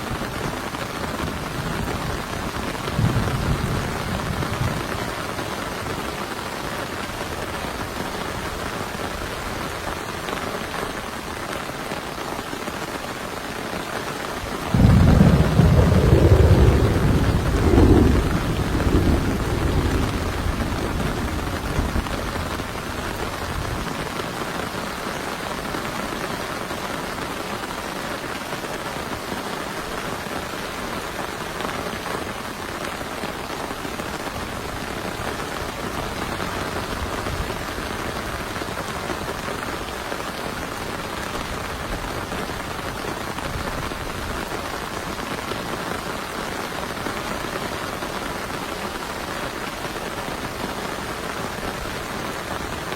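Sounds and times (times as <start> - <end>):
heavy rain falling: 0.0 - 52.9
thunder rumble: 1.1 - 5.2, 14.7 - 23.9.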